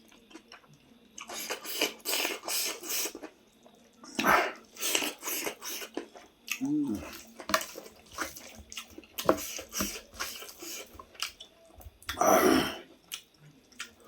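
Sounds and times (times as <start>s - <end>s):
chewing and lip smacking: 4.7s - 12.2s, 13.0s - 14.0s.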